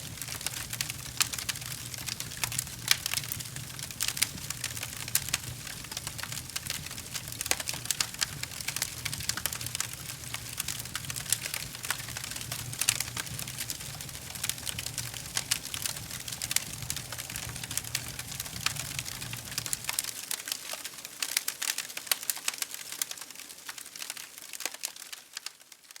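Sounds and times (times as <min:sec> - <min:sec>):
wood fire crackling: 0:00.0 - 0:25.8
low rumble: 0:10.3 - 0:20.0.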